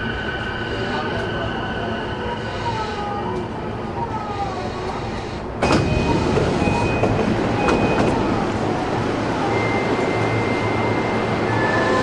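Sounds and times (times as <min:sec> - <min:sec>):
train doors opening: 0:04.8 - 0:12.0.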